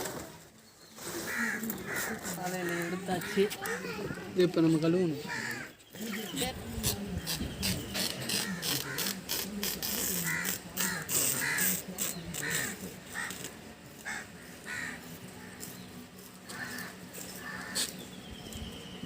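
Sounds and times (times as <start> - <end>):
crow cawing: 1.3 - 4.2, 5.2 - 5.8, 8.3 - 9.2, 10.2 - 11.8, 12.4 - 15.7, 16.4 - 18.0.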